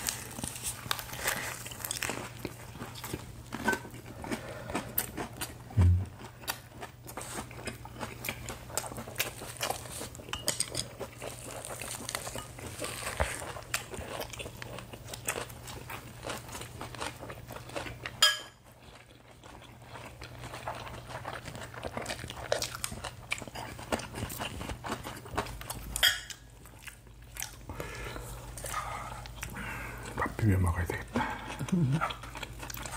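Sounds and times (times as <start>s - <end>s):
chewing and crunching lettuce: 0.0s - 32.9s
faint low hum: 0.0s - 32.9s.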